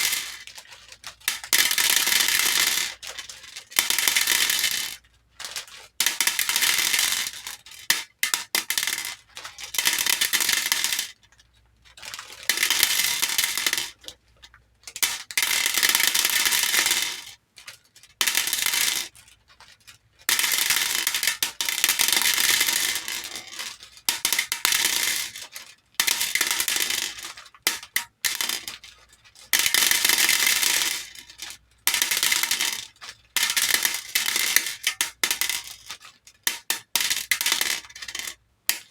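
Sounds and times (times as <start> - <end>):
plastic beads clattering into bowl: 0.0 - 0.6, 6.0 - 11.2, 12.1 - 14.1, 20.3 - 38.9.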